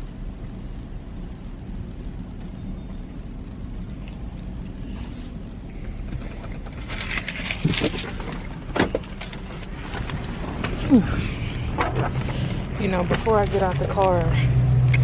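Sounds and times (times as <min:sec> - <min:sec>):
car cabin rumble: 0:00.0 - 0:15.0
clicks and rustles: 0:04.0 - 0:15.0.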